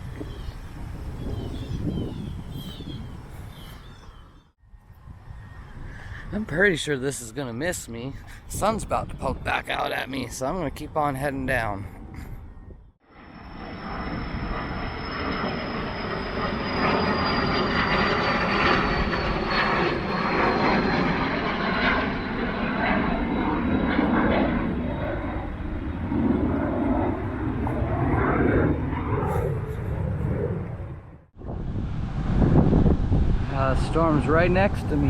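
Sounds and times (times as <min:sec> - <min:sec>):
airplane passing overhead: 0:00.0 - 0:35.0.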